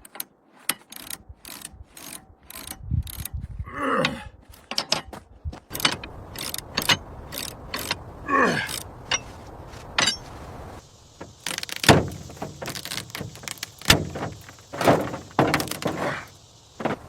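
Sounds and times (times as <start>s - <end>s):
metallic clicks and clanks: 0.0s - 3.4s, 4.6s - 8.0s, 8.7s - 9.3s, 10.0s - 10.3s, 11.2s - 16.0s
ratchet clicking: 0.0s - 3.4s, 5.7s - 8.0s, 11.3s - 14.7s.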